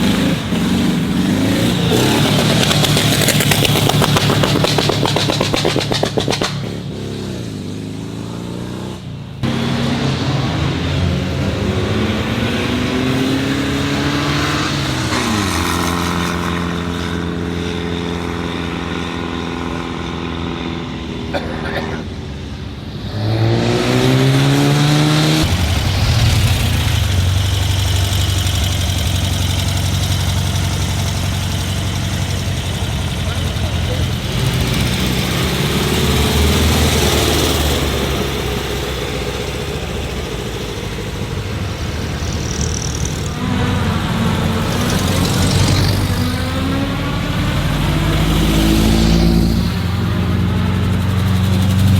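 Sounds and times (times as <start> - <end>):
vehicle engines revving and passing: 0.0 - 51.9.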